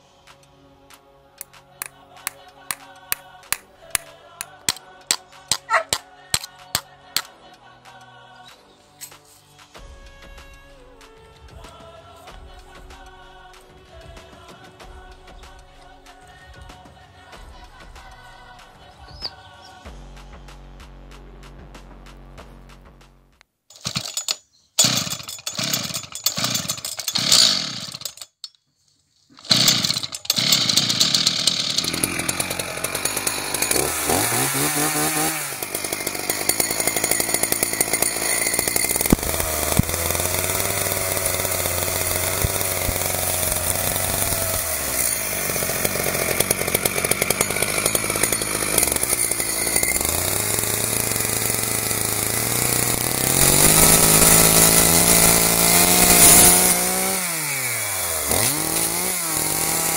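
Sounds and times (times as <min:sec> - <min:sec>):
small engine revving: 0:23.8 - 0:28.2, 0:29.4 - 0:59.9.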